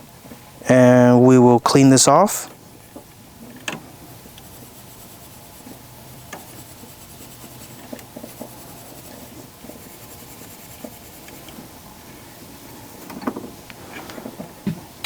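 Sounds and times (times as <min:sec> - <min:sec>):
steel wool scratching metal: 0:04.2 - 0:11.5.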